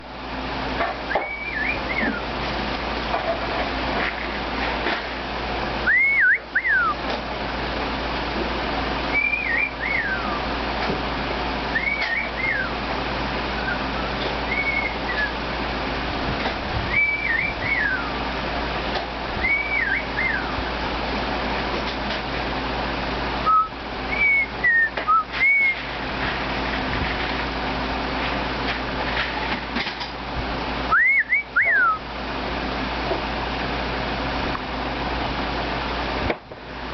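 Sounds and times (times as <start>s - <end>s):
bird whistling: 1.1s - 2.3s, 5.8s - 7.0s, 9.1s - 10.5s, 11.7s - 12.8s, 13.5s - 15.4s, 16.9s - 18.2s, 19.4s - 20.7s, 23.4s - 25.9s, 30.9s - 32.0s.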